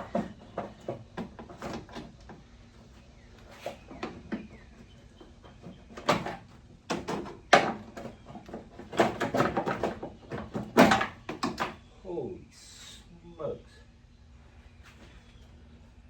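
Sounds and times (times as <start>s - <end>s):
handling knocks clicks and rustles: 0.0s - 11.9s.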